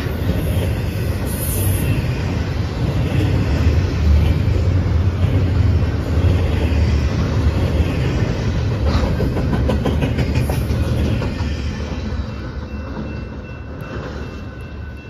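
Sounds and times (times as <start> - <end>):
freight train rumbling: 0.0 - 15.0.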